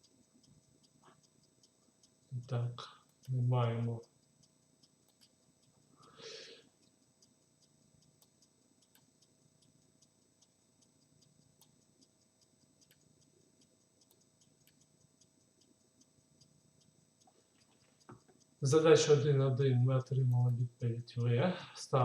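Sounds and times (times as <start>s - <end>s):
faint clicks: 0.0s - 22.0s
breath-like hiss: 6.0s - 6.6s.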